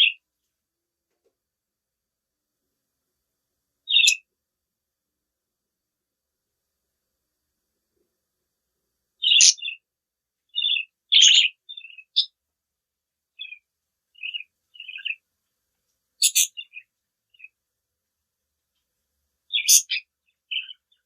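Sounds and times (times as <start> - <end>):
budgerigar chirping: 0.0 - 0.2, 3.9 - 4.2, 9.2 - 9.8, 10.5 - 12.4, 13.4 - 13.6, 14.2 - 15.2, 16.2 - 17.6, 19.5 - 21.0.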